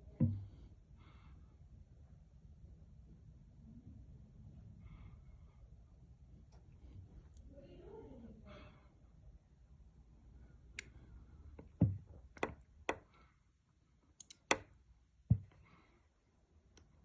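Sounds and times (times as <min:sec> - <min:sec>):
faint low hum: 0:00.0 - 0:17.0
sharp clicks and knocks: 0:11.5 - 0:13.1, 0:14.2 - 0:15.6.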